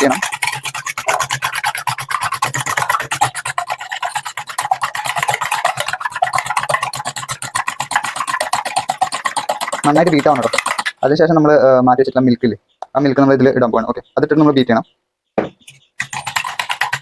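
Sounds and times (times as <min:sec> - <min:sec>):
utensil scraping bowl beating eggs: 0:00.0 - 0:11.2, 0:15.6 - 0:17.0.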